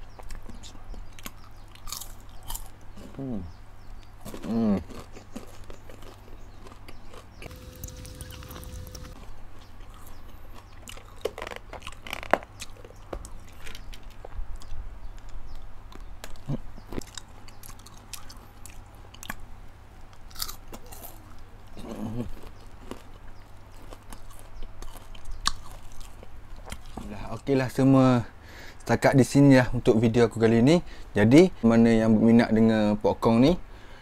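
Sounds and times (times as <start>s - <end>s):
person chewing crunchy popcorn: 0.2s - 3.2s, 4.1s - 19.5s, 20.1s - 27.4s.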